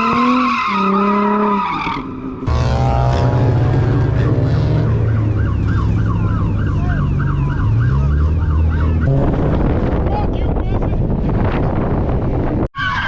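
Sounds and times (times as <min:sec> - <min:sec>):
car engine running: 0:02.5 - 0:10.1
emergency siren yelping: 0:04.2 - 0:09.2.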